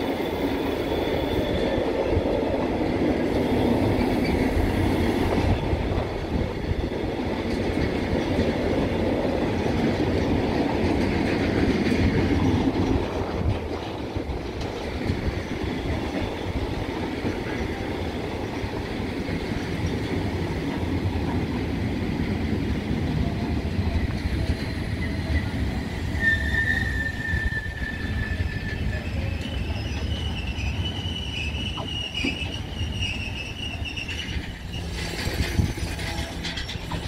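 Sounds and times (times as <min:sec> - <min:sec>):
high metallic squeal: 0:00.0 - 0:01.8, 0:24.5 - 0:37.0
freight train wheels rumbling: 0:00.0 - 0:37.0.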